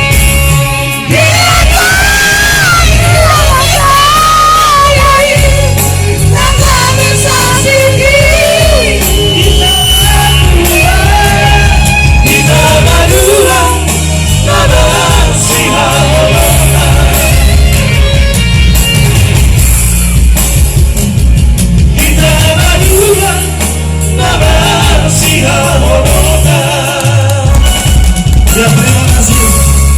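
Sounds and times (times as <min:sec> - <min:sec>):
vocal trio singing pop song: 0:00.0 - 0:18.4, 0:21.7 - 0:29.9
band with bass and drums: 0:00.0 - 0:29.9.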